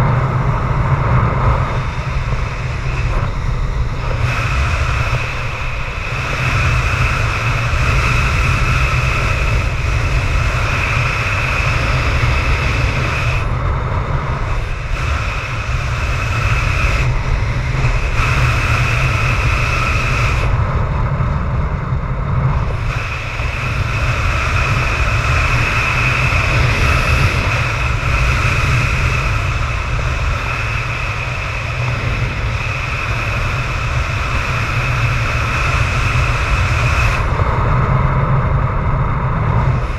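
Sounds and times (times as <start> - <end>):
high wind whistle: 0.0 - 39.9
wind buffeting microphone: 0.0 - 39.9.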